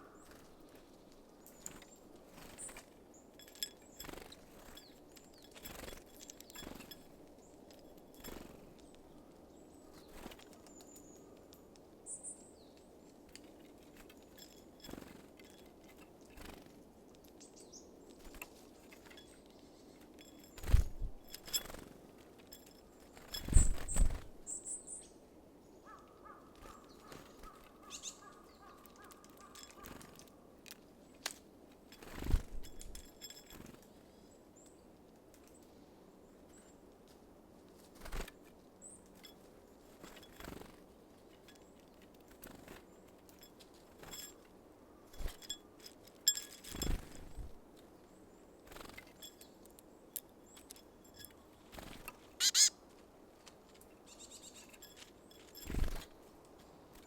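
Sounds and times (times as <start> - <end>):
birds pecking at seed: 0.0 - 11.9, 12.7 - 24.5, 26.2 - 34.2, 37.7 - 48.0, 48.6 - 57.0
short high bird chirps: 52.4 - 52.7.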